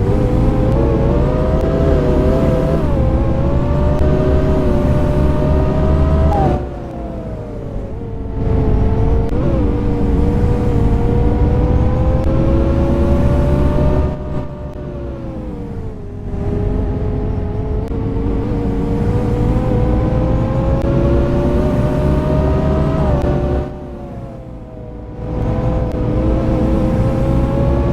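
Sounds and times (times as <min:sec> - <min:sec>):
bus diesel engine accelerating: 0:00.0 - 0:27.9.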